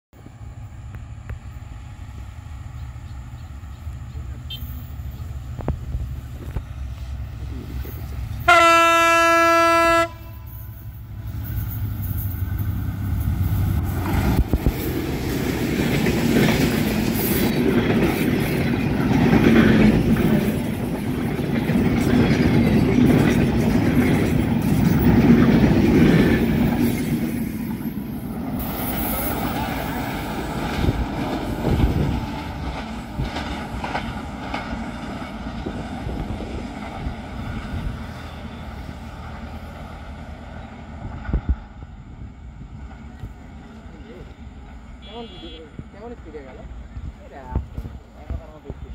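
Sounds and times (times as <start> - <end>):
train wheels rumbling and clacking: 0.2 - 45.0
train horn blast: 8.4 - 10.8, 45.0 - 45.8.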